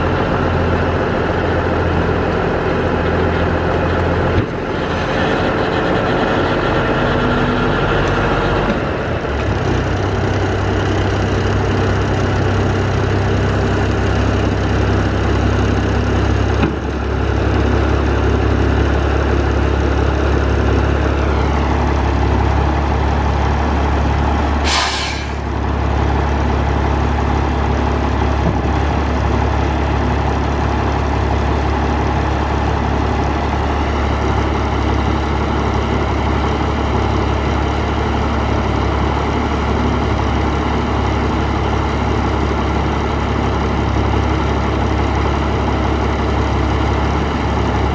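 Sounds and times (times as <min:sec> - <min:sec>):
truck engine idling: 0:00.0 - 0:47.9
air brake hiss: 0:24.6 - 0:25.5.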